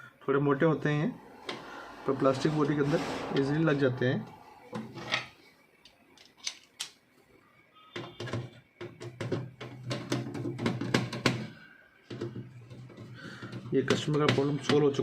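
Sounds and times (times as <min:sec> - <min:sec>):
steady low hum: 0:00.0 - 0:05.7
plastic parts clicking and knocking: 0:04.7 - 0:07.0, 0:07.9 - 0:15.0.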